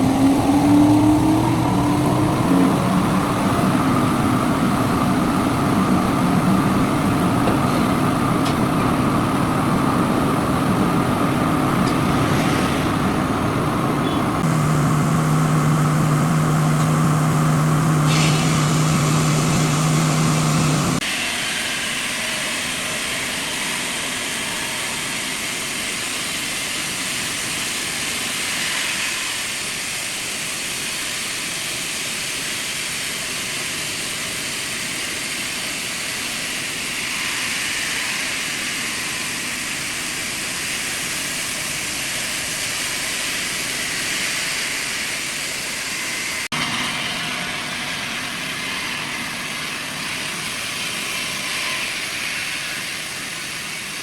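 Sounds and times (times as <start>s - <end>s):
heavy machinery engine running: 0.0s - 21.0s
hissy machine sound: 0.0s - 54.0s.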